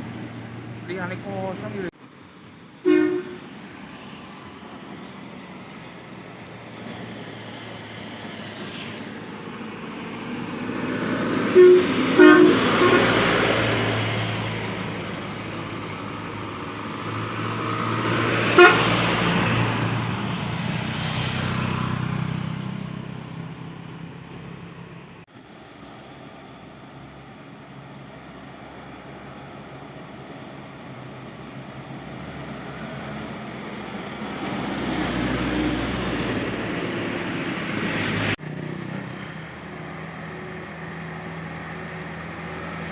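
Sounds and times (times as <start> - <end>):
trucks passing by: 0.0 - 42.9
short horn toots: 2.8 - 3.5, 11.4 - 13.4, 18.5 - 19.0.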